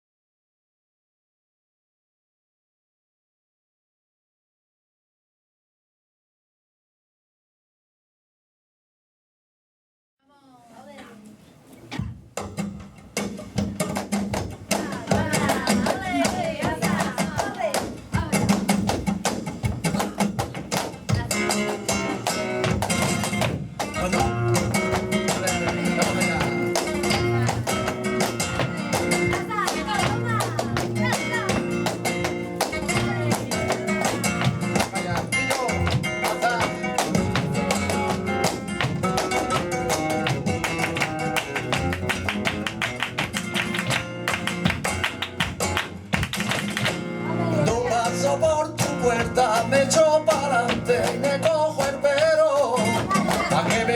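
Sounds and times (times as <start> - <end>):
flamenco guitar playing: 12.0 - 53.9.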